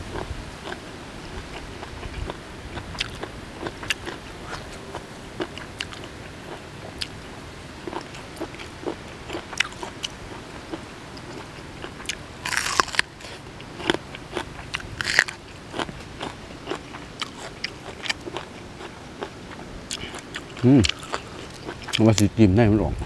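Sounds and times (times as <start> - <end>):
close chewing crunchy food: 0.1 - 7.2, 7.8 - 22.2.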